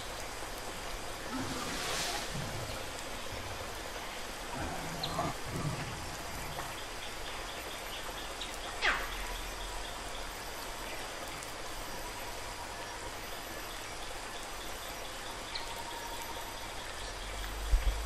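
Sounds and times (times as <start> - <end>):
running water rushing: 0.0 - 11.9.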